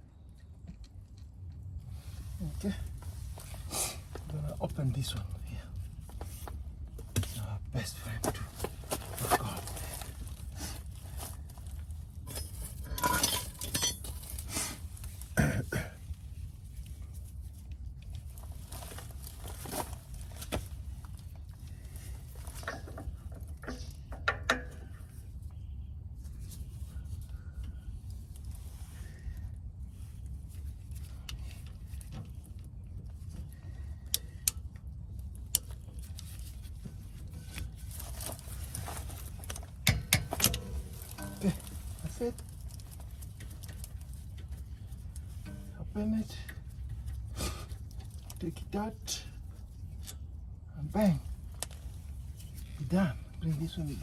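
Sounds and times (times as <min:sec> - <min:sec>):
steady low rumble: 0:00.0 - 0:54.0
metal tools clinking and knocking: 0:12.2 - 0:14.3, 0:39.7 - 0:42.8.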